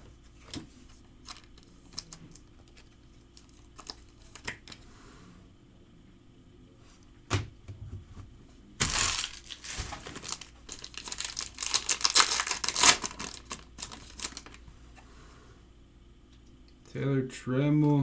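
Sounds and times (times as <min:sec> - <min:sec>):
wrapper crackling and tearing: 0:08.8 - 0:14.6.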